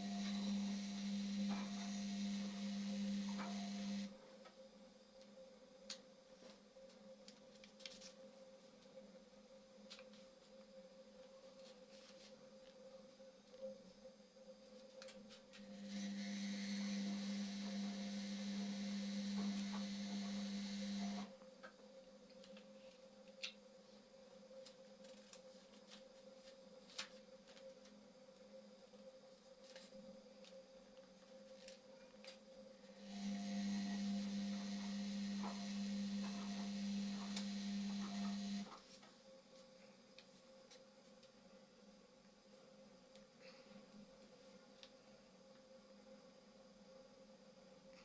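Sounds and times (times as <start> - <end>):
washing machine humming: 0.0 - 4.1, 15.6 - 21.3, 32.9 - 38.7.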